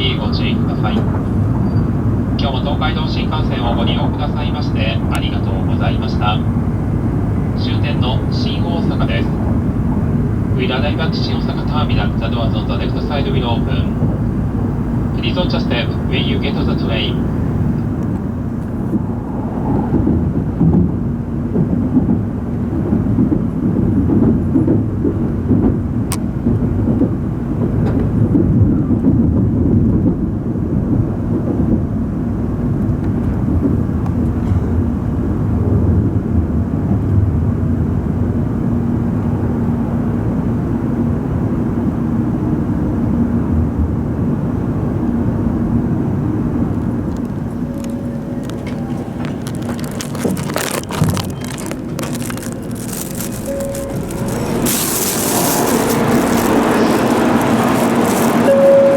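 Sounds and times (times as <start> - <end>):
train running low rumble: 0.0 - 58.9.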